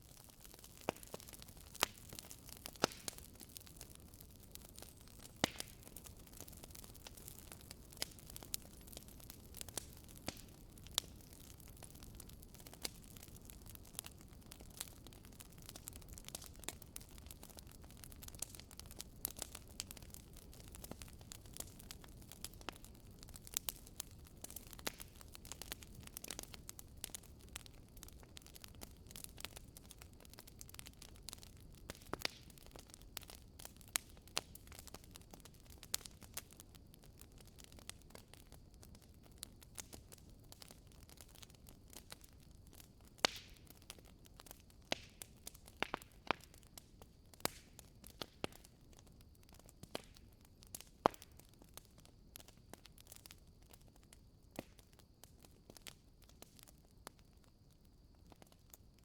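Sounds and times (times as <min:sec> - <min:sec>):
bonfire crackling: 0:00.0 - 0:59.0.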